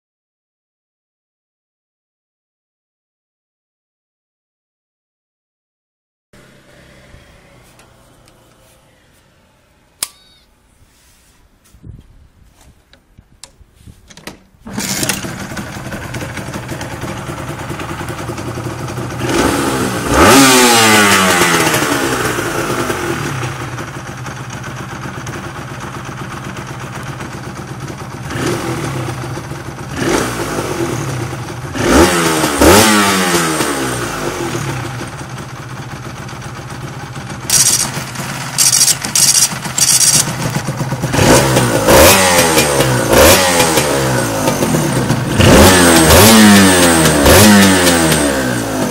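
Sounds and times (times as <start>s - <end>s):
motorcycle engine revving: 6.4s - 10.0s, 14.7s - 48.9s
short sharp engine bursts: 6.4s - 10.5s, 37.3s - 48.9s.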